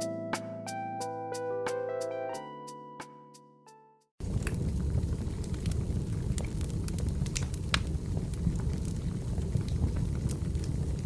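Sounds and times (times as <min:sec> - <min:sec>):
wood fire crackling: 0:04.2 - 0:11.0.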